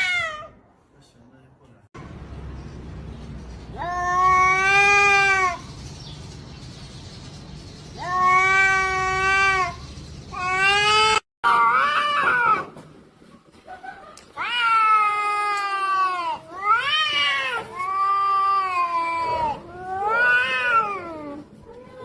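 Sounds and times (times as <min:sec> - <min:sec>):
cats yowling: 0:00.0 - 0:00.6, 0:03.7 - 0:05.7, 0:08.0 - 0:12.7, 0:14.4 - 0:22.0.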